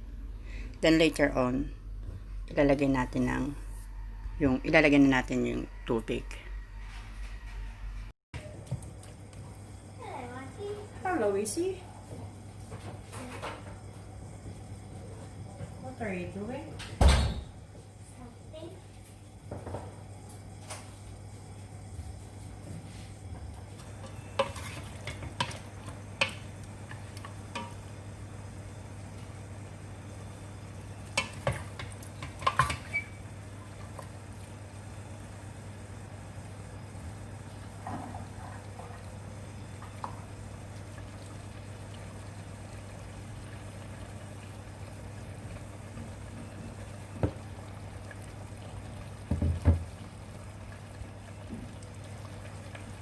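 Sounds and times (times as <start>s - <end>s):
steady low hum: 0.0s - 53.0s
marinade simmering: 17.4s - 53.0s
utensil clinking and scraping a pan: 23.8s - 27.8s, 31.1s - 33.2s.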